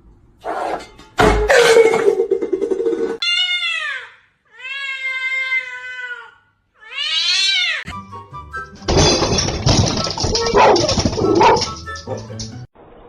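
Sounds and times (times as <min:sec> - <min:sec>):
cat meowing: 0:03.2 - 0:07.9.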